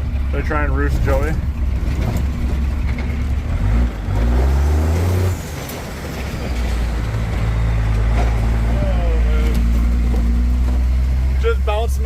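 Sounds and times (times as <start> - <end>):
diesel pickup engine running: 0.0 - 12.0.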